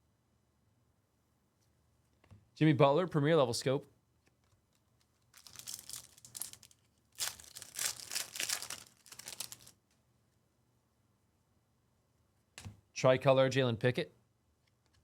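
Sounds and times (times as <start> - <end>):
plastic wrapper crinkling and tearing: 5.1 - 9.8.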